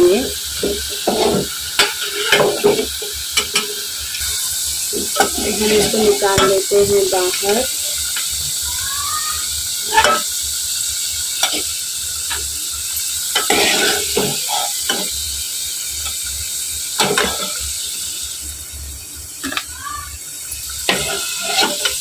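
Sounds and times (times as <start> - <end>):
potatoes sizzling in hot oil: 0.0 - 22.0
ladle clinking and scraping pan: 0.6 - 3.8, 5.0 - 6.7, 9.9 - 10.3, 13.4 - 15.2, 20.9 - 22.0.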